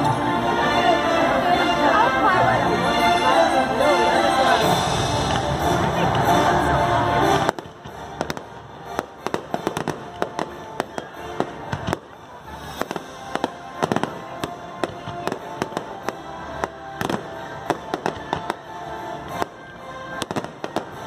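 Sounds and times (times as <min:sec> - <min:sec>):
show music: 0:00.0 - 0:21.0
fireworks bangs and pops: 0:05.0 - 0:06.3, 0:07.3 - 0:21.0.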